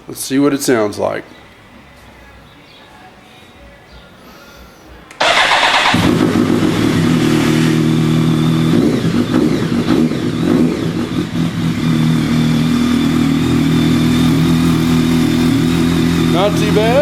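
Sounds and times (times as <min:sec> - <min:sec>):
motorcycle starter cranking: 0:05.2 - 0:07.8
motorcycle engine idling loudly: 0:05.2 - 0:17.0.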